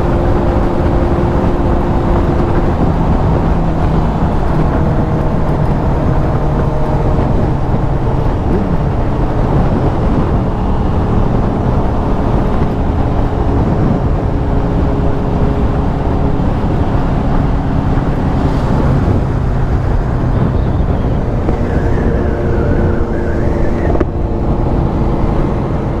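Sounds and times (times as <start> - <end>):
motorcycle engine running: 0.0 - 23.4
wind noise: 0.0 - 26.0.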